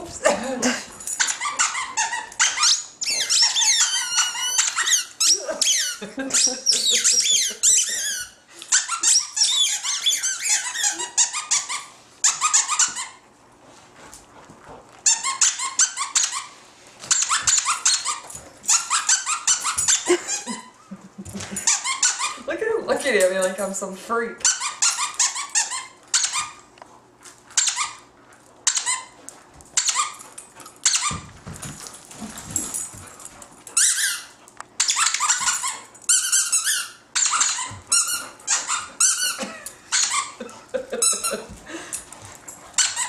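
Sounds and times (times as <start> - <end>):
squeaky dog toy squeaking: 1.2 - 13.2, 15.0 - 20.7, 21.6 - 22.5, 24.4 - 26.6, 27.6 - 28.1, 28.7 - 29.2, 29.8 - 30.2, 30.8 - 31.3, 33.8 - 40.4, 42.8 - 43.0.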